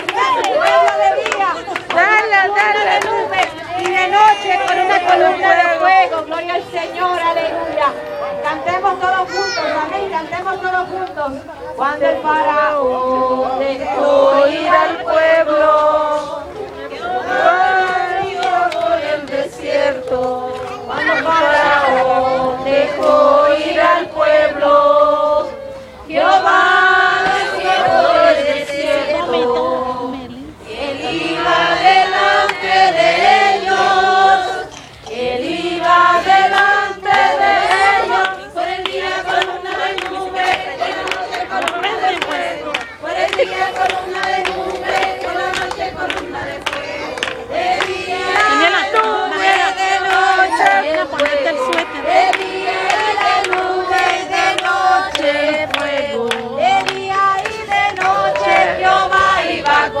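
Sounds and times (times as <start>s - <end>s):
hand claps: 0.0s - 5.2s, 17.9s - 19.4s, 35.9s - 58.7s
congregation singing a hymn: 0.0s - 60.0s.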